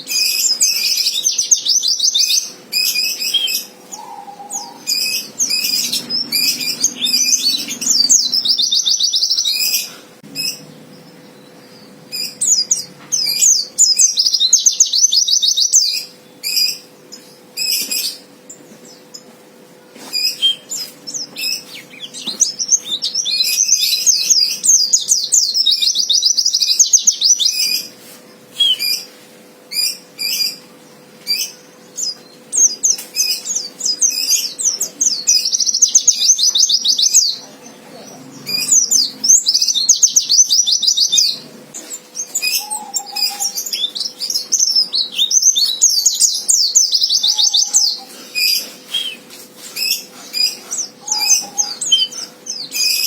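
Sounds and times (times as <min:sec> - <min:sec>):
bird twittering song: 0:00.0 - 0:53.0.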